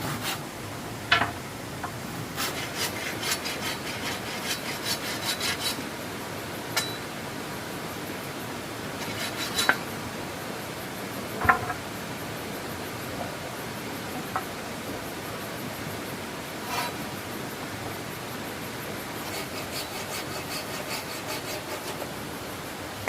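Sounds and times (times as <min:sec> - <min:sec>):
steady hiss: 0:00.0 - 0:23.0
scraping strokes on wood: 0:02.4 - 0:05.8, 0:09.0 - 0:09.9, 0:16.6 - 0:17.0, 0:19.2 - 0:22.2.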